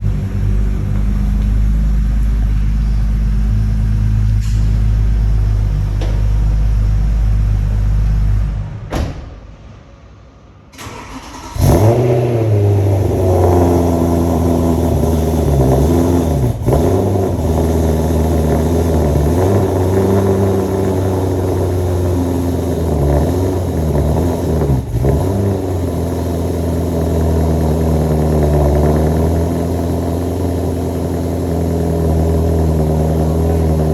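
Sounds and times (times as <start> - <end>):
car engine idling: 0.0 - 8.6, 10.8 - 33.9
engine restarting with loud flare: 10.7 - 33.9.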